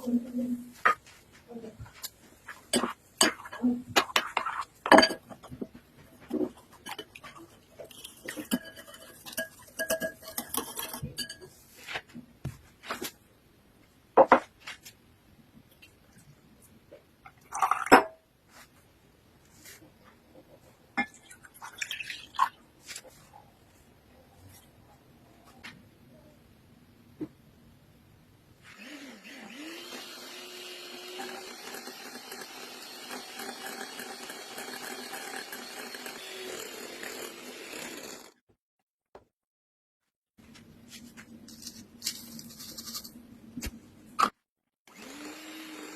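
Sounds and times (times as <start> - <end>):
dishes and utensils clinking: 2.7 - 5.6, 6.7 - 12.0
kitchen appliance motor whirring: 28.7 - 38.4, 44.9 - 45.9.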